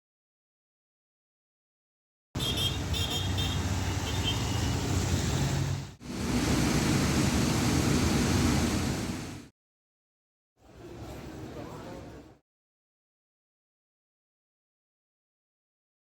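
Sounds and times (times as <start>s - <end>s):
road traffic noise: 2.4s - 9.5s.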